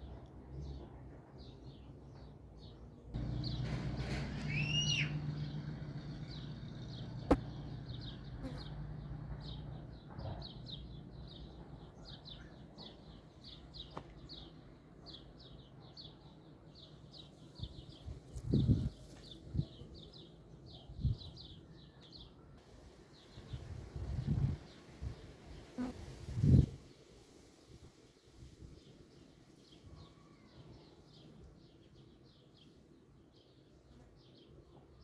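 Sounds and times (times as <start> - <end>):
small bird chirping: 3.2 - 11.0.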